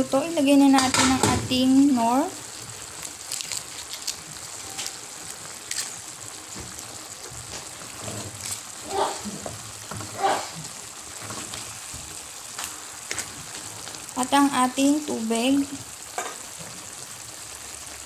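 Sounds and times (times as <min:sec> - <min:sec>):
chicken sizzling in a pan: 0:00.1 - 0:18.0
wooden spatula scraping a pan: 0:07.3 - 0:12.1.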